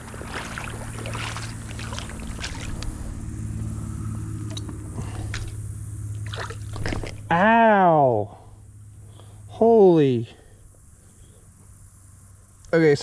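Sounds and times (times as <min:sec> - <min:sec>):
small splashes and drips: 0:00.0 - 0:07.3
creek water flowing: 0:00.0 - 0:07.4.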